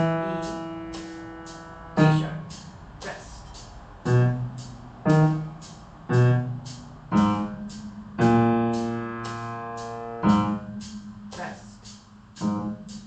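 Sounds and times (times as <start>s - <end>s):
low piano chords: 0.0s - 2.6s, 4.0s - 11.3s, 12.3s - 12.9s.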